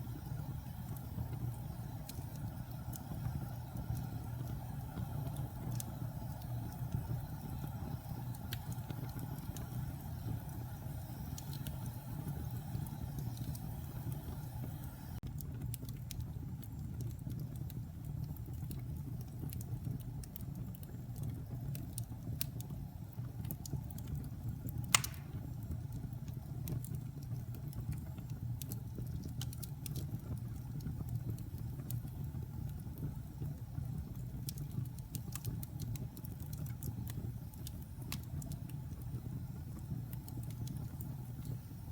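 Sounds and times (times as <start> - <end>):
fire crackles: 0.0 - 41.9
log fire rumbling: 0.0 - 41.9
loud sharp pop: 25.0 - 25.4.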